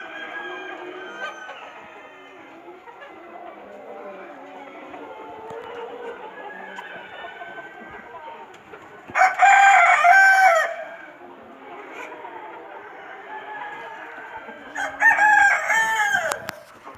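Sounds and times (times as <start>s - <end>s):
rooster crowing: 0.0s - 2.4s, 9.1s - 11.1s, 12.9s - 16.7s
chickens clucking: 0.0s - 16.9s.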